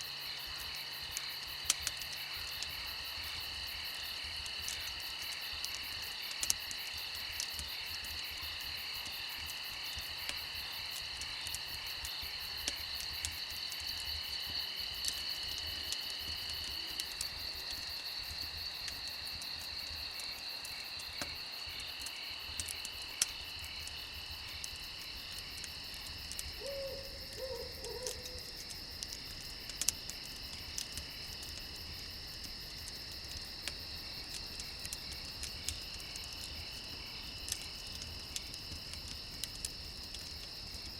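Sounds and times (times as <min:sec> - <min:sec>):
campfire crackling: 0:00.0 - 0:40.9
crickets chirping: 0:00.0 - 0:40.9
low animal calls: 0:26.6 - 0:28.6.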